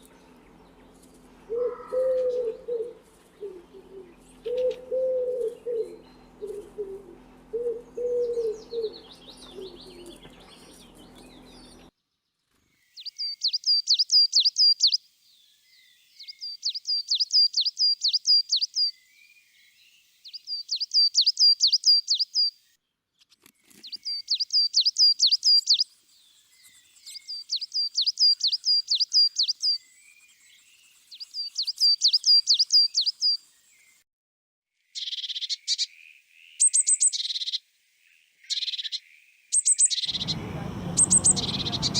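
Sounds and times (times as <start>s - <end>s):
faint hum: 0.0s - 11.9s, 40.1s - 41.9s
low bird coos: 1.4s - 11.7s
quick high bird chirps: 31.1s - 33.4s, 39.6s - 41.9s.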